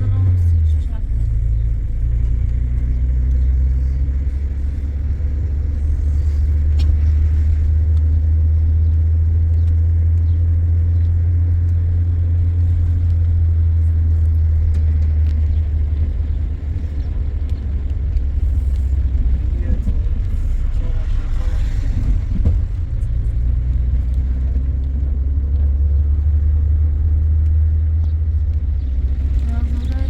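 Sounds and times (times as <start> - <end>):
car engine rumble: 0.0 - 30.0
road noise inside car: 0.0 - 30.0.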